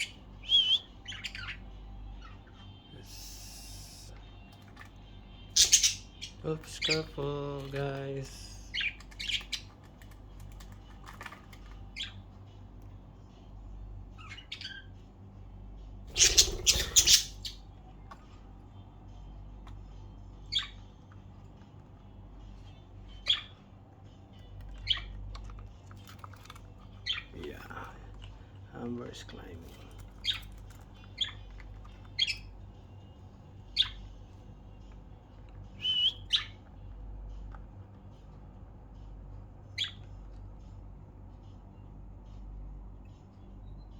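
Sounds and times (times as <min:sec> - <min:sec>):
harsh squawks: 0:00.0 - 0:01.6, 0:05.5 - 0:07.0, 0:16.1 - 0:17.6
budgerigars chirping: 0:00.0 - 0:02.4, 0:05.5 - 0:07.1, 0:08.3 - 0:09.8, 0:11.9 - 0:12.2, 0:14.2 - 0:14.9, 0:16.1 - 0:17.6, 0:20.5 - 0:20.8, 0:23.2 - 0:23.6, 0:24.8 - 0:25.1, 0:27.0 - 0:27.4, 0:30.2 - 0:30.6, 0:31.2 - 0:31.5, 0:32.1 - 0:32.5, 0:33.7 - 0:34.1, 0:35.8 - 0:36.6, 0:39.8 - 0:40.0.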